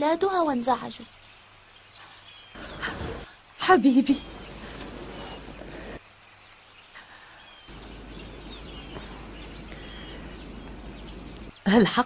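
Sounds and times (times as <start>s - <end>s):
background ambience hiss: 0.0s - 12.0s
faint bird chirps: 0.5s - 11.8s
low hum: 7.7s - 11.5s.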